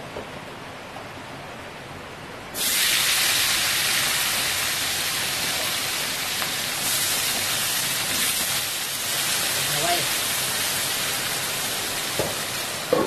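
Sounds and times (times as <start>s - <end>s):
food sizzling in hot oil: 2.6s - 13.0s.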